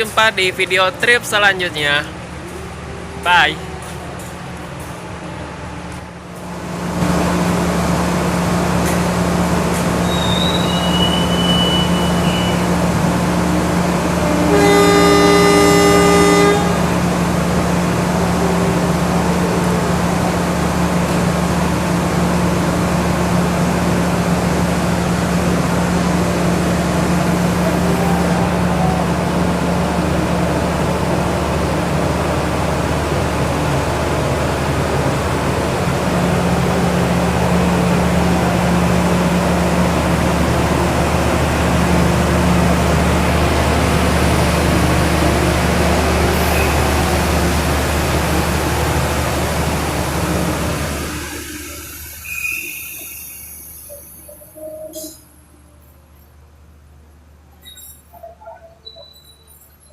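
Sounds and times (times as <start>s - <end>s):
diesel train running: 0.0s - 59.9s
locomotive horn blast: 10.0s - 20.9s, 25.5s - 32.0s, 35.8s - 49.7s.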